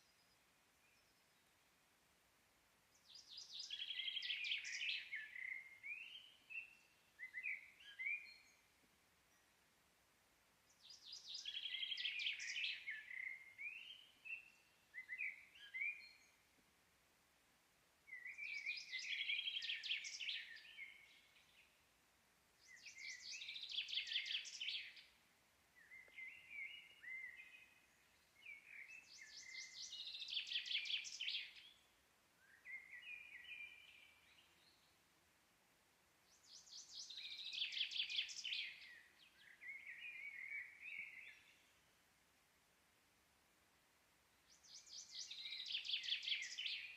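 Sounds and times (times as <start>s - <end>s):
faint outdoor background hiss: 0.0s - 46.9s
songbird singing trills: 2.9s - 8.7s, 10.7s - 16.5s, 18.1s - 21.7s, 22.6s - 25.2s, 25.8s - 35.0s, 36.2s - 41.8s, 44.4s - 46.9s.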